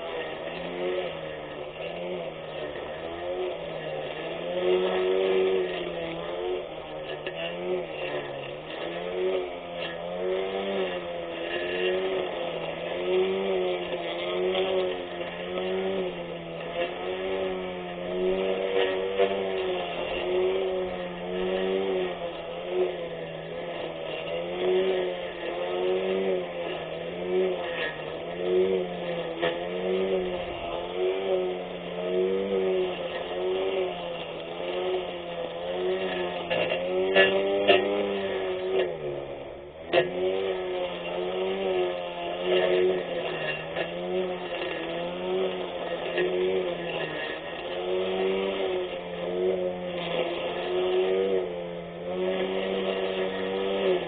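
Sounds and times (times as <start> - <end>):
electric mower motor humming: 0.0 - 54.0.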